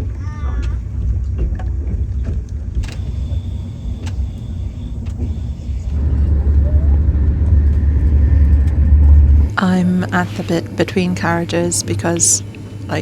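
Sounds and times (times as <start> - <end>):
thin steady whine: 0.0 - 13.0
train rumbling: 0.0 - 13.0
faint clicks: 0.5 - 9.6.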